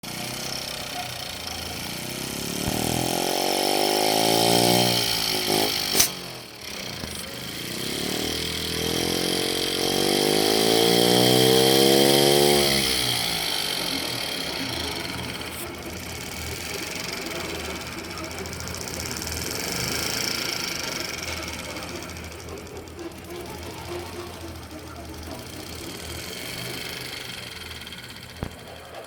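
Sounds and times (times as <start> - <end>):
small air-powered engine running: 0.0 - 29.0
sharp click: 5.9 - 6.3.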